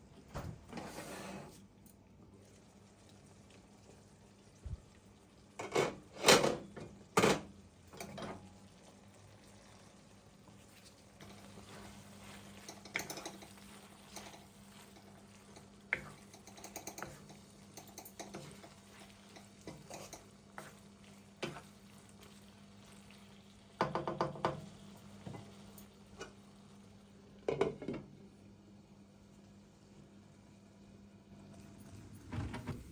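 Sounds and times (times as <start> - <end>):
utensils clinking against dishes: 12.6 - 20.3.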